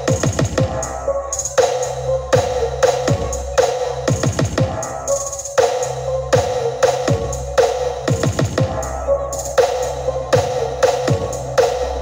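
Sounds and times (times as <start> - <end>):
heavy bass kicks: 0.0 - 1.0, 2.3 - 5.0, 8.1 - 9.0
electronic dance music: 0.0 - 12.0.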